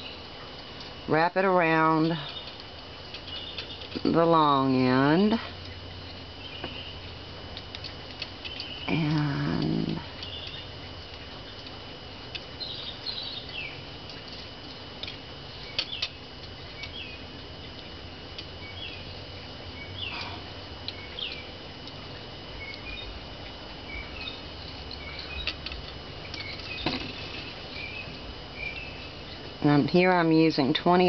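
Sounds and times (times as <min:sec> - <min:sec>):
steady high whine: 0:00.0 - 0:31.0.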